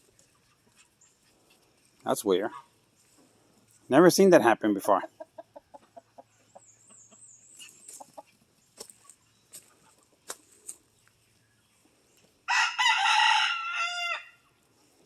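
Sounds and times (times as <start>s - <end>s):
chickens clucking: 0.0s - 3.8s, 4.7s - 12.4s
rooster crowing: 12.5s - 14.4s.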